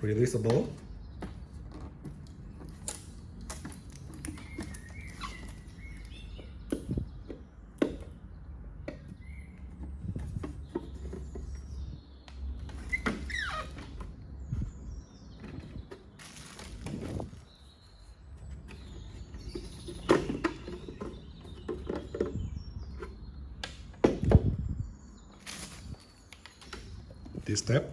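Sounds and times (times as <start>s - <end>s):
short squeaks: 4.4s - 6.1s, 12.7s - 14.2s
plastic tank clicks and knocks: 6.3s - 8.2s, 19.3s - 24.5s.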